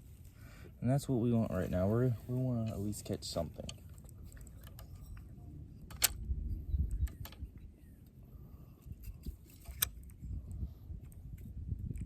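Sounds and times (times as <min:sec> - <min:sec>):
low microphone rumble: 0:00.0 - 0:12.0.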